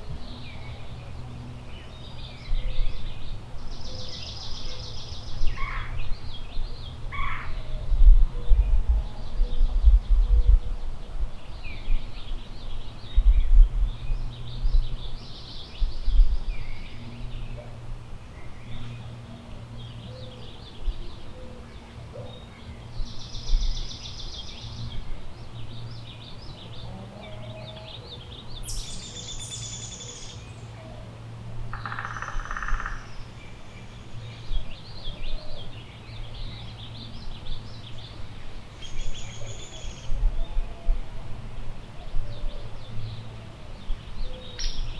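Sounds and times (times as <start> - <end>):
wind rumbling on microphone: 0.0 - 30.6, 31.3 - 44.9
birds chirping and trilling: 19.7 - 30.9, 31.7 - 40.9.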